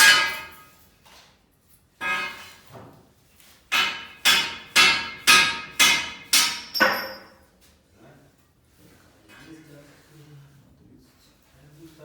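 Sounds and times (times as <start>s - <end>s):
hammer striking metal: 0.0s - 0.7s, 2.0s - 2.6s, 3.7s - 7.4s.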